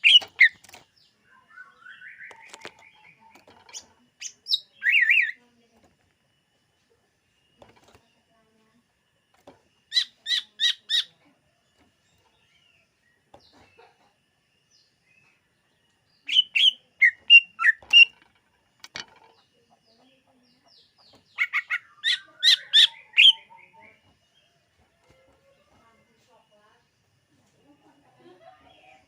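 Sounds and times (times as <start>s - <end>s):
bird chirping and whistling: 4.2s - 5.4s, 16.3s - 18.1s.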